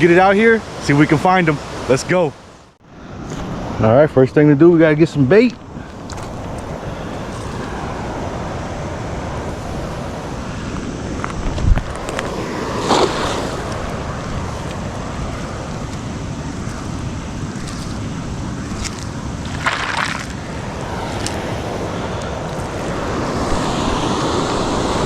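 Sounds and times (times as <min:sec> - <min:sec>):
waterfall rushing: 0:11.9 - 0:25.0.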